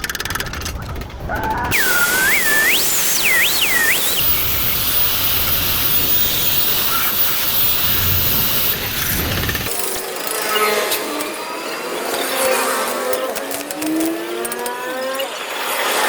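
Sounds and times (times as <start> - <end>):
whistle-like sliding tone: 1.7 - 9.7
arc welding hissing sizzle: 1.7 - 9.8.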